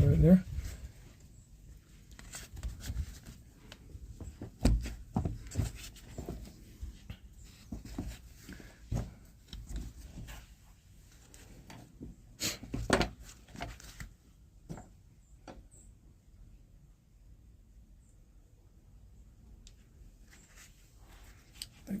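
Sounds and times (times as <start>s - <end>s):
microphone handling knocks and rubs: 4.1s - 7.0s.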